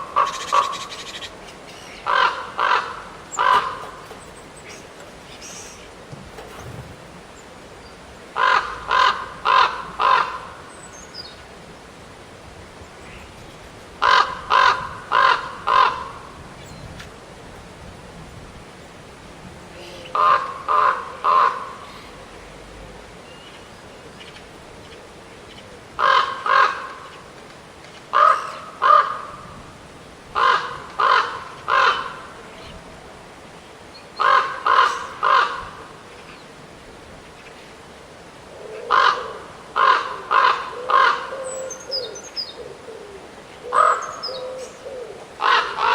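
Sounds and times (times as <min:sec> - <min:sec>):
crow cawing: 0:01.8 - 0:04.1, 0:38.9 - 0:41.4.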